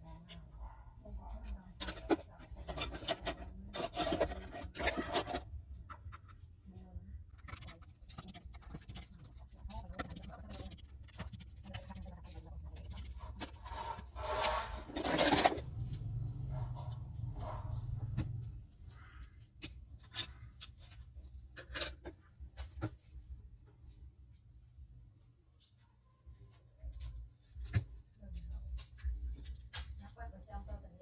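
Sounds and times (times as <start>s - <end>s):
tools scraping a phone: 1.4s - 6.5s, 7.2s - 22.9s.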